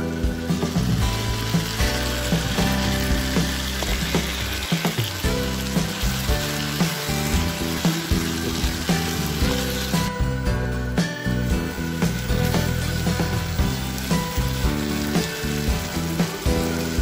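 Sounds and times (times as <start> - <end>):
background music: 0.0 - 17.0
meat sizzling in hot oil: 0.0 - 17.0
spatula stirring: 1.4 - 10.1.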